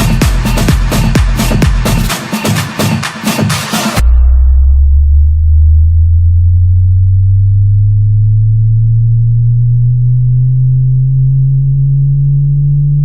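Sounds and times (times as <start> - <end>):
bass sweep test tone: 0.0 - 2.1, 4.0 - 13.0
electronic dance music: 0.0 - 4.1.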